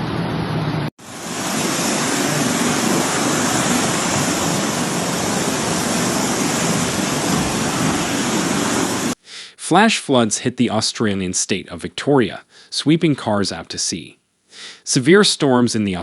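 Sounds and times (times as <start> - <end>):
floodwater rushing: 1.0 - 9.2.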